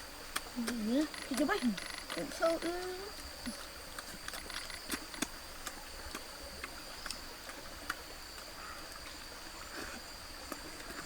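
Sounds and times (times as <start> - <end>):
faint clicks and ticks: 0.3 - 9.1
high-pitched insect drone: 0.8 - 5.2.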